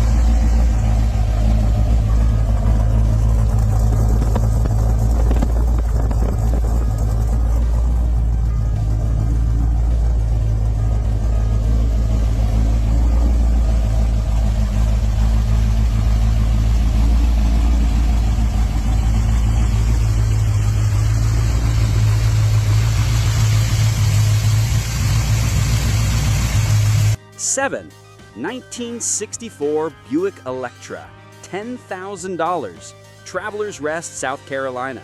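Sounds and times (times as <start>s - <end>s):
engine deep drone: 0.0s - 27.2s.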